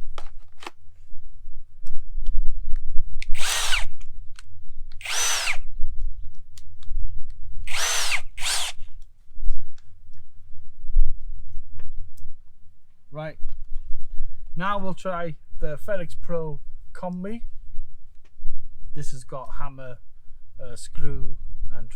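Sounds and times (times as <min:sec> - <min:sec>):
cordless drill motor spinning: 0:03.2 - 0:04.1, 0:05.0 - 0:05.7, 0:07.7 - 0:08.9.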